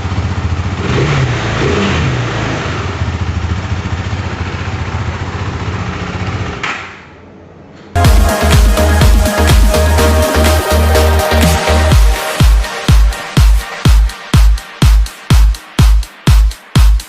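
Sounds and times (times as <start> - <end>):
motorcycle engine idling: 0.0 - 1.4, 2.2 - 6.6.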